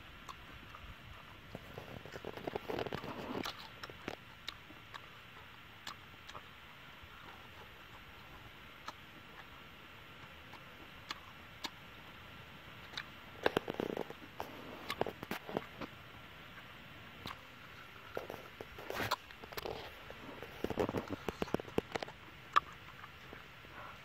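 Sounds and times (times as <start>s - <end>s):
person chewing and smacking: 1.5s - 5.1s, 12.9s - 16.0s, 16.6s - 23.9s.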